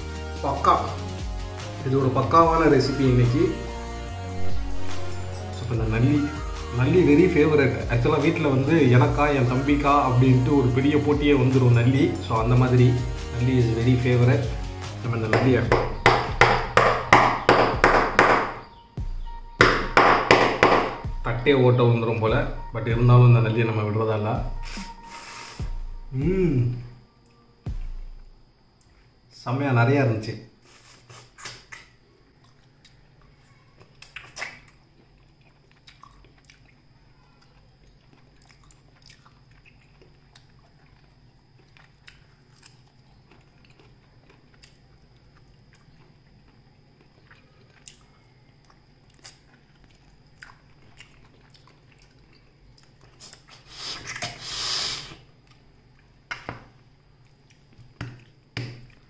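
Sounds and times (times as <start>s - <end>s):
person chewing on a bone: 30.8s - 54.2s, 57.2s - 59.0s.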